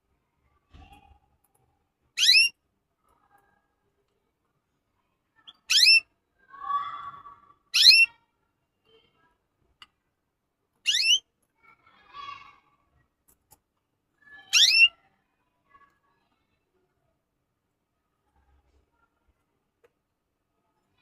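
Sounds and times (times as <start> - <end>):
bird twittering: 2.2 - 2.5, 5.5 - 6.0, 7.8 - 8.1, 10.8 - 11.2, 14.5 - 14.9
bird rising calls: 10.9 - 11.2.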